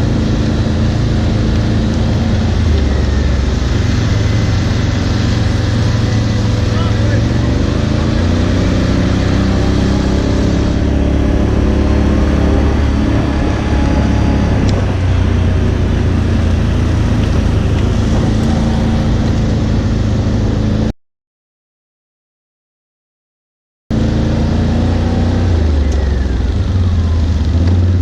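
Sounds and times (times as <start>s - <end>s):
atv engine running: 0.0s - 20.9s, 23.9s - 28.0s
heavy low noise: 0.0s - 20.9s.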